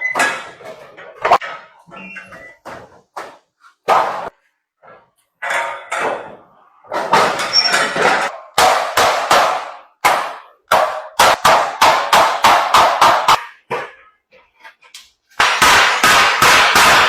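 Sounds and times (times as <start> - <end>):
hammer blows on sheet iron: 8.5 - 13.9, 15.4 - 17.0.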